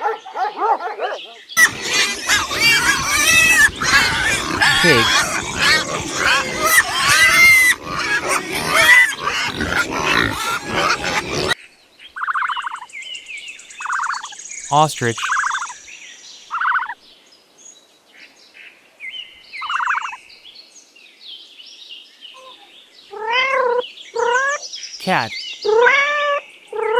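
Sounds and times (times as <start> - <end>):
birds trilling: 1.6 - 11.6
pigs grunting and squealing: 1.6 - 11.6.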